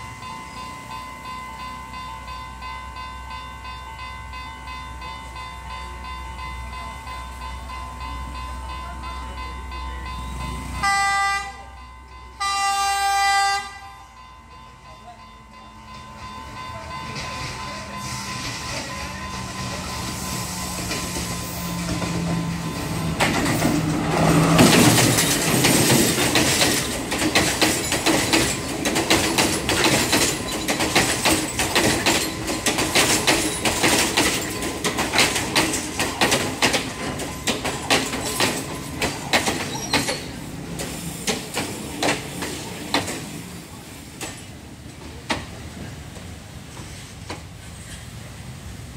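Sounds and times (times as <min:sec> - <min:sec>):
train engine drone: 0:00.0 - 0:48.9
rapid wheel clicks over rail joints: 0:24.5 - 0:43.3.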